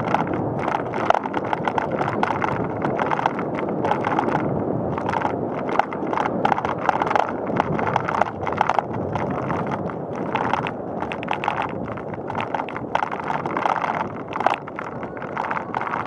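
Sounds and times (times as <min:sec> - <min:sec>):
bicycle tyres rumbling on pavement: 0:00.0 - 0:16.0
bike clicks and rattles: 0:00.0 - 0:16.0.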